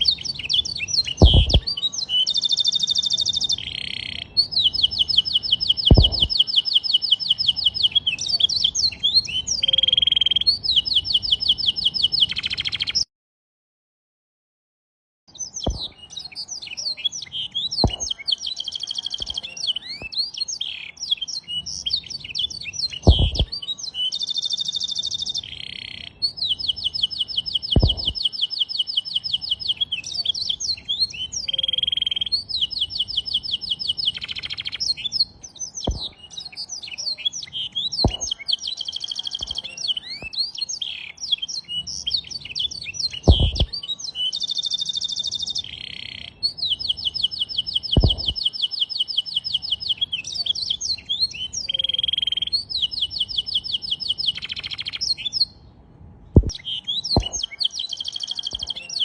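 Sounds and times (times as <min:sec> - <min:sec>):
canary singing: 0:00.0 - 0:13.0, 0:15.3 - 0:55.6, 0:56.4 - 0:59.0
sharp knocks: 0:01.2 - 0:01.7, 0:05.9 - 0:06.3, 0:15.7 - 0:15.9, 0:17.8 - 0:18.1, 0:23.0 - 0:23.5, 0:27.8 - 0:28.2, 0:35.9 - 0:36.1, 0:38.0 - 0:38.3, 0:43.3 - 0:43.7, 0:48.0 - 0:48.4, 0:56.4 - 0:56.6, 0:57.2 - 0:57.4.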